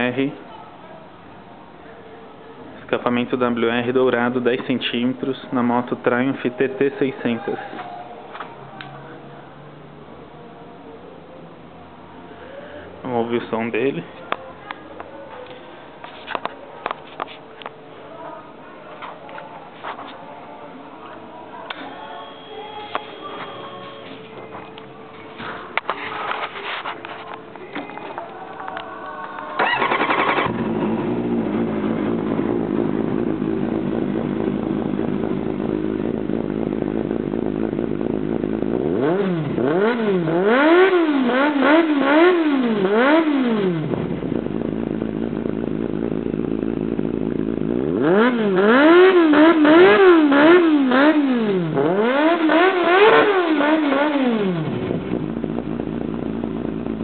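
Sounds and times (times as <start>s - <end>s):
motorcycle engine revving: 29.6s - 57.0s
motorcycle engine starting and idling: 29.6s - 57.0s.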